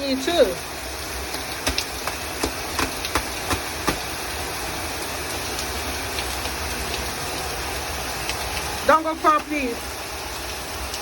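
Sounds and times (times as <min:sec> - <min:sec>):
heavy rain hissing: 0:00.0 - 0:11.0
sharp taps of raindrops: 0:01.2 - 0:04.5, 0:08.1 - 0:09.6.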